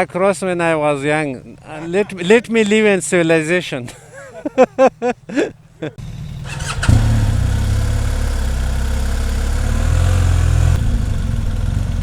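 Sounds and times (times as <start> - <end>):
motorcycle engine running: 6.0 - 12.0.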